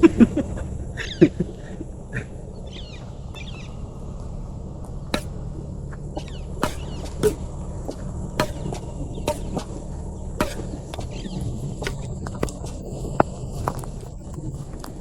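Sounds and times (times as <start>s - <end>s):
low background noise: 0.0s - 15.0s
bird chirps and calls: 2.5s - 3.8s, 6.2s - 7.4s.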